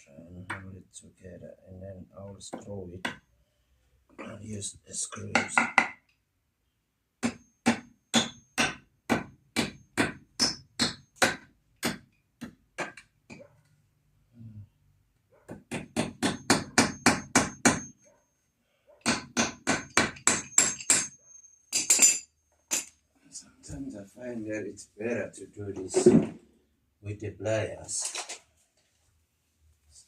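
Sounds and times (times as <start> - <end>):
hammer striking nails: 5.2 - 6.0, 7.2 - 13.4, 15.5 - 18.0, 19.0 - 22.9.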